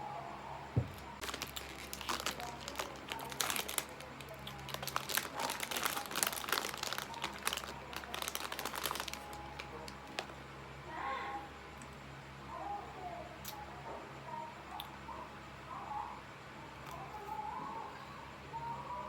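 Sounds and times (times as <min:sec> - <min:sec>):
low thump: 0:00.8 - 0:01.0
packaging crinkling: 0:00.8 - 0:10.4.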